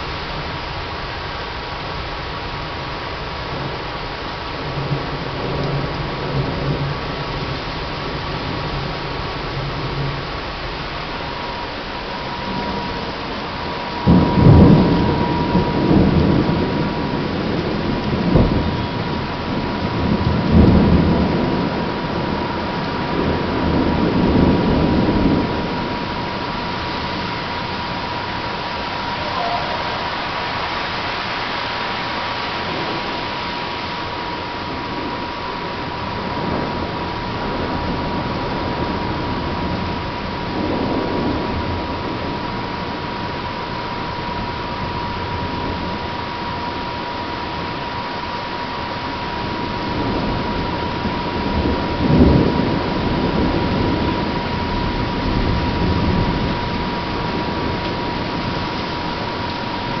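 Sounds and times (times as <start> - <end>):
steady hiss: 0.0 - 46.5
heavy rain: 0.0 - 60.0
thunder rumbling: 0.0 - 60.0
thin high tone: 28.7 - 31.1.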